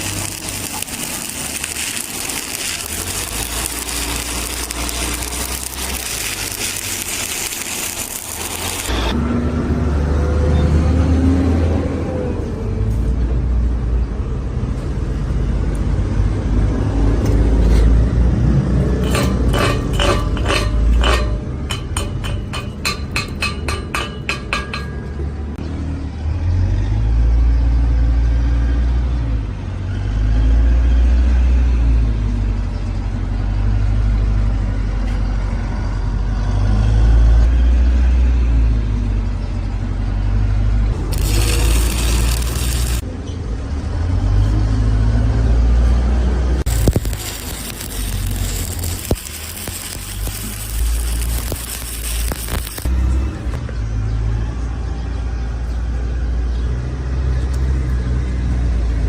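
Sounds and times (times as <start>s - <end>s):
steel struck with ringing tones: 18.9s - 25.5s
high hissing: 46.7s - 52.9s.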